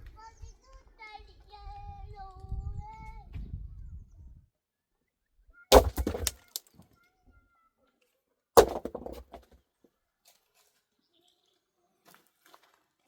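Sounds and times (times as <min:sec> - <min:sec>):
sharp cracks: 0:05.7 - 0:06.6.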